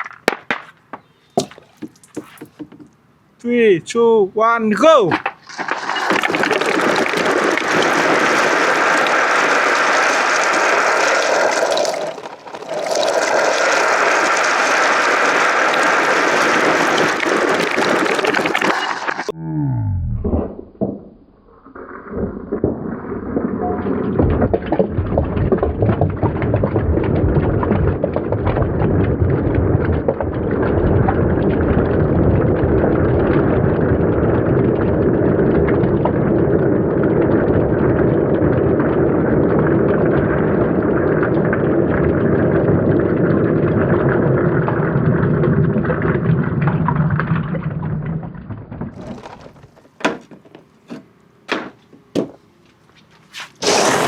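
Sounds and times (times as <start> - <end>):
marbles rolling down wooden ramps: 0.0 - 3.0, 5.1 - 19.3, 22.3 - 51.0, 53.6 - 54.0
marbles clicking: 5.2 - 19.3.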